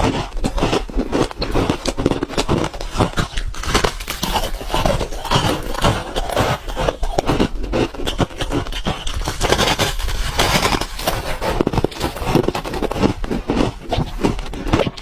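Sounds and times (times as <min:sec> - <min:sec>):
teeth crunching ice: 0:00.0 - 0:15.0.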